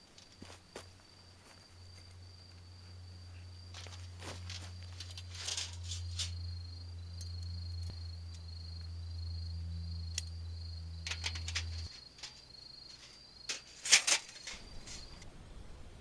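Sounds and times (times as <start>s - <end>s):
cricket trilling: 0.0s - 15.2s
steady low hum: 0.8s - 16.0s
sharp clicks and knocks: 11.0s - 15.2s.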